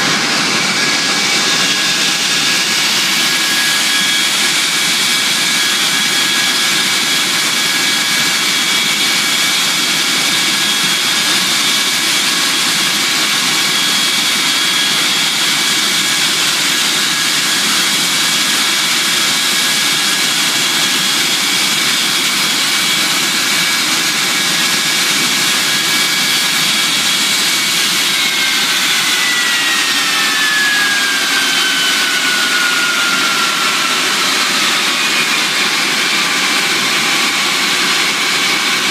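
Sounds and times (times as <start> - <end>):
jet engines rushing and whining: 0.0 - 38.9.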